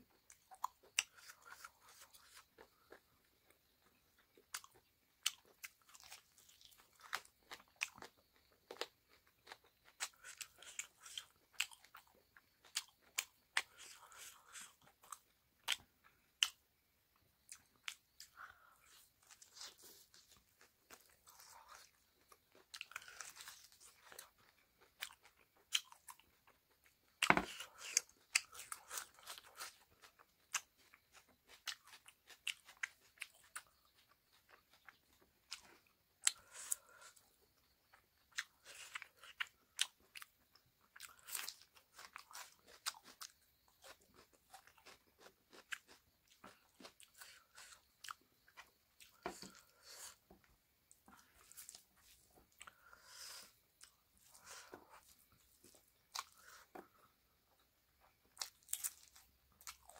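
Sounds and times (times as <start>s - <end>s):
crunching raw onion: 17.4s - 37.3s, 58.0s - 59.9s.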